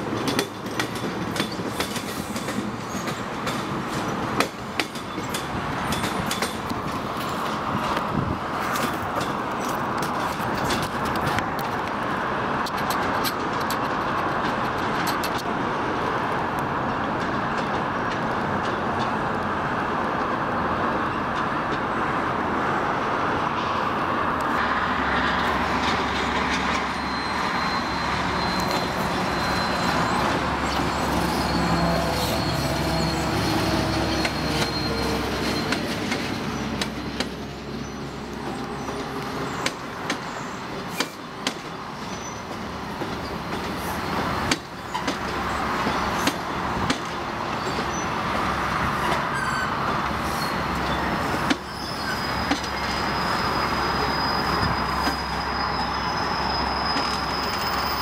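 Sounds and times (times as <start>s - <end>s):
wheels clacking over rail joints: 0.0s - 20.4s, 25.2s - 55.9s
diesel locomotive rumble: 0.0s - 58.0s
train rumbling past: 0.0s - 58.0s
wheel squeal: 26.5s - 36.8s, 42.0s - 42.6s, 49.0s - 58.0s.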